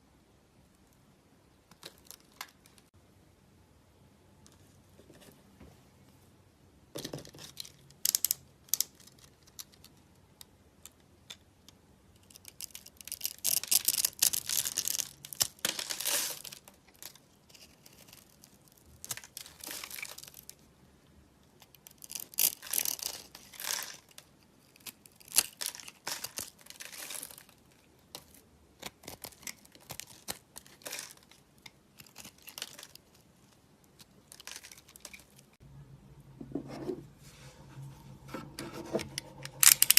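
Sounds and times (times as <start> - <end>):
dry soap crackling and crunching: 12.2 - 20.7, 21.6 - 35.6.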